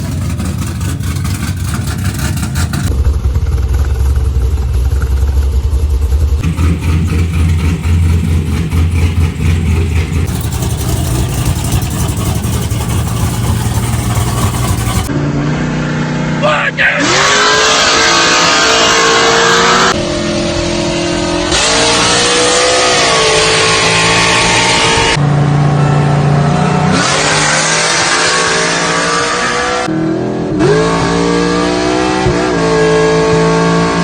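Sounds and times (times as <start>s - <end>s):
car engine running: 0.0s - 16.6s.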